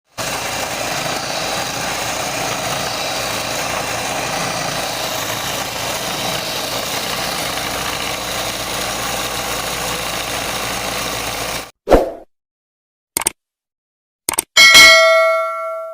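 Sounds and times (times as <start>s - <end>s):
electric motor running: 0.1s - 11.7s.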